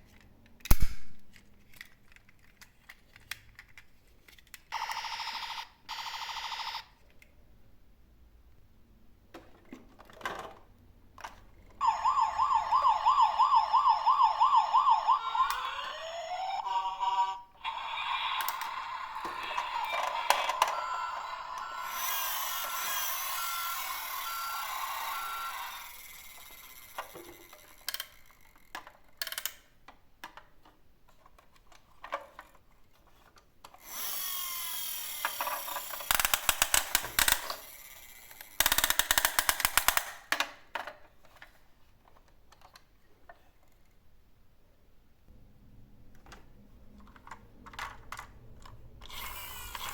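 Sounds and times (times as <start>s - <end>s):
toy motor whirr: 11.8s - 29.4s, 33.8s - 40.2s, 49.0s - 49.9s.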